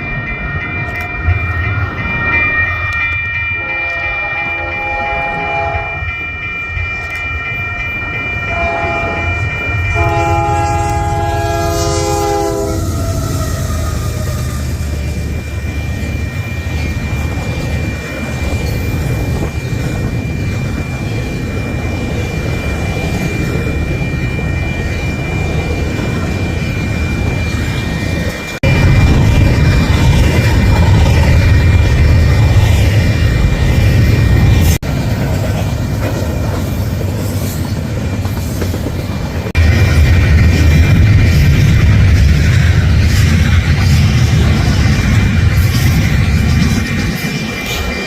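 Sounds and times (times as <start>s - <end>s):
train rumbling by: 0.0s - 48.0s
locomotive air horn blasts: 3.6s - 6.0s, 8.5s - 14.9s.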